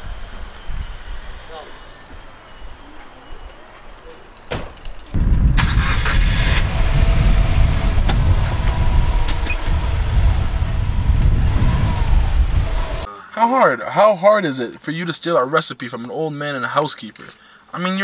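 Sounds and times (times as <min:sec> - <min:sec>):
car engine rumbling: 0:05.2 - 0:13.1.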